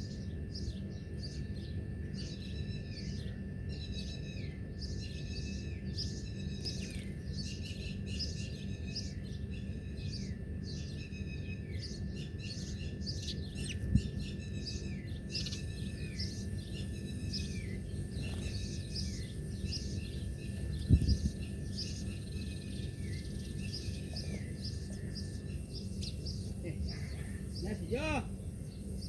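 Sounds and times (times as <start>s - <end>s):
songbirds chirping: 0.0s - 29.0s
steady low rumble: 13.1s - 29.0s.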